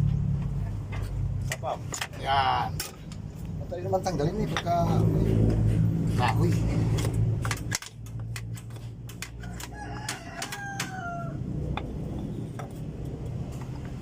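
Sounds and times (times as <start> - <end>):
sharp clicks and knocks: 5.4 - 11.0
rooster crowing: 9.4 - 11.9.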